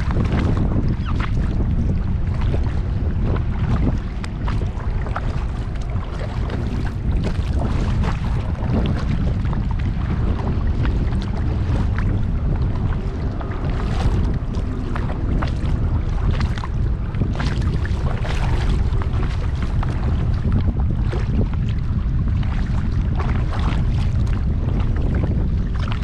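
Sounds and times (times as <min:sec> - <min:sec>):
wind buffeting microphone: 0:00.0 - 0:26.0
water splashing and dripping: 0:03.3 - 0:10.1.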